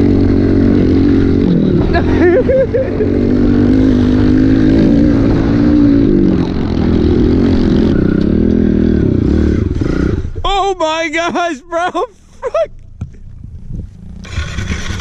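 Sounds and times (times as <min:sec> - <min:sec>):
pit bike engine revving: 0:00.0 - 0:10.4, 0:13.9 - 0:15.0.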